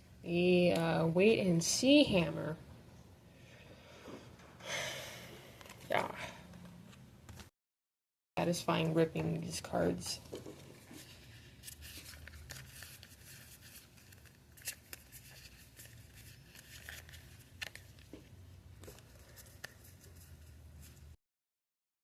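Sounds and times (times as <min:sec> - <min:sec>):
trading cards rustling: 0:10.3 - 0:21.1.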